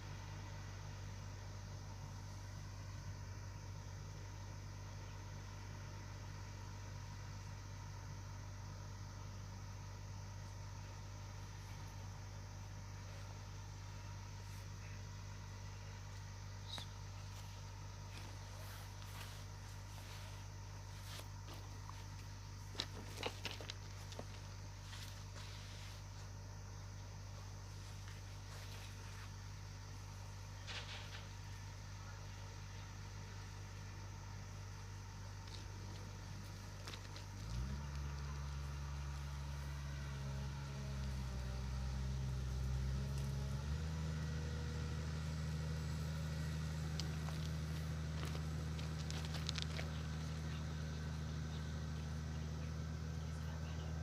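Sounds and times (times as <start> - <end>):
heavy engine idling: 10.1 - 54.0
heavy diesel engine running: 35.5 - 54.0.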